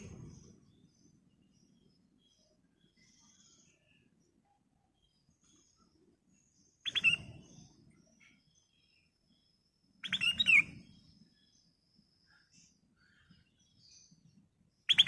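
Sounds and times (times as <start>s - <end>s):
bulbul whistled song: 6.8s - 7.6s, 10.0s - 11.0s.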